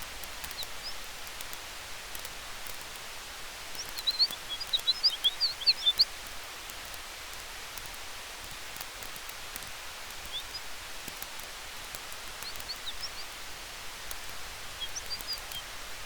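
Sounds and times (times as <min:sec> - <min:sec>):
burning wood crackling: 0:00.0 - 0:16.0
wind hiss: 0:00.0 - 0:16.0
small bird chirping: 0:00.3 - 0:01.4, 0:03.6 - 0:06.4, 0:10.1 - 0:15.8.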